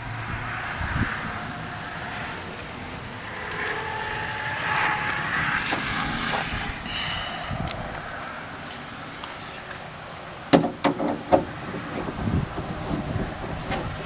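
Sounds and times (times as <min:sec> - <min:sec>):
vehicle passing by: 0:00.0 - 0:10.5.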